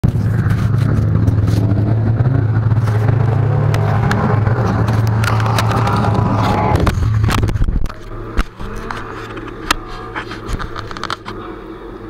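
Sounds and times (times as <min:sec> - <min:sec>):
car engine running: 0:00.0 - 0:12.0
clicks and bumps: 0:02.7 - 0:11.4.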